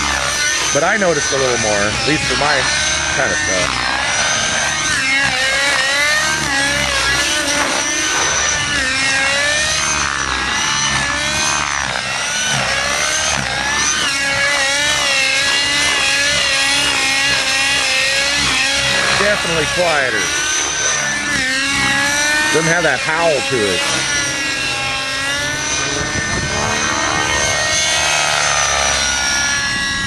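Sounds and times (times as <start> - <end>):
model helicopter engine wavering: 0.0 - 30.0.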